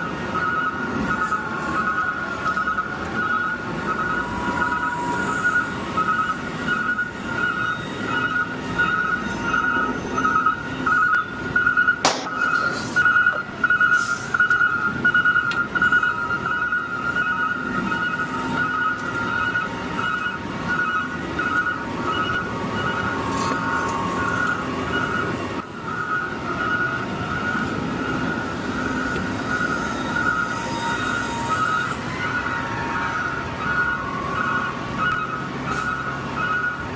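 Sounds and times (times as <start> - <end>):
truck reversing alarm beeping: 0.0 - 36.9.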